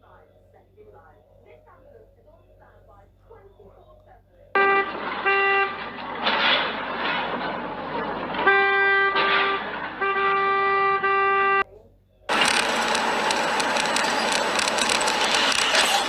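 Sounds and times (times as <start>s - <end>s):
car horn honking: 4.6s - 11.6s, 12.3s - 16.0s
vehicle and road noise: 4.6s - 11.6s, 12.3s - 16.0s.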